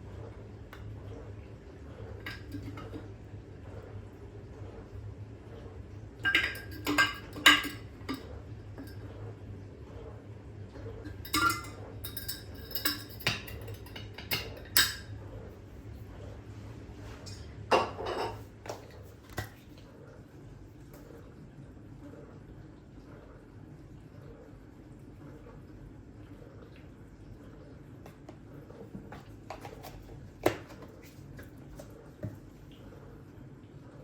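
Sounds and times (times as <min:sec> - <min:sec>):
low steady hum: 0:00.0 - 0:34.0
dishes and utensils clattering: 0:02.2 - 0:03.1, 0:06.2 - 0:09.0, 0:11.0 - 0:15.2, 0:17.2 - 0:19.6.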